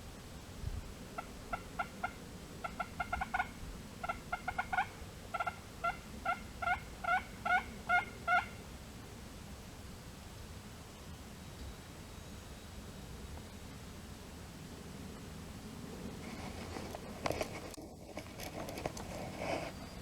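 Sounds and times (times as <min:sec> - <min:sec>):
turkey yelping: 0:01.5 - 0:08.6.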